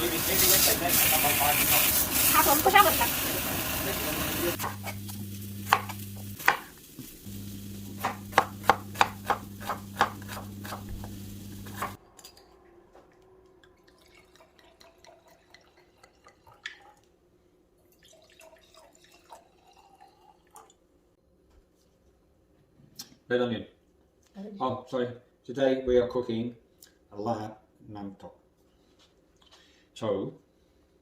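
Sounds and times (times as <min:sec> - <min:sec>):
low steady hum: 0:04.4 - 0:06.4.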